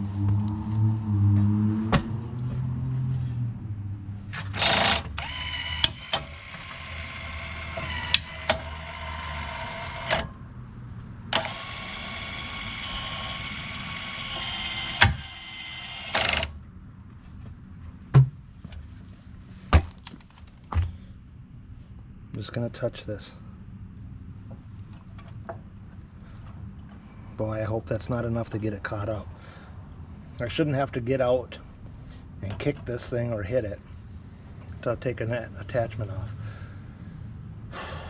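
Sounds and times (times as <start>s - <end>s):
sharp clicks and knocks: 4.3s - 10.4s, 14.3s - 15.4s
electric actuator motor whining: 4.5s - 10.4s, 11.3s - 16.6s.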